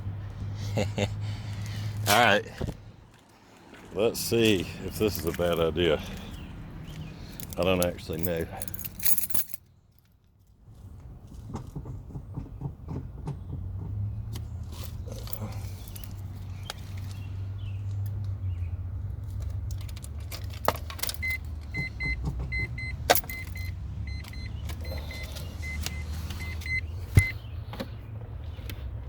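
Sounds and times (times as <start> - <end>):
keys jangling: 7.3 - 10.1, 19.5 - 21.7, 23.0 - 23.7
car warning chime beeps: 21.2 - 27.4.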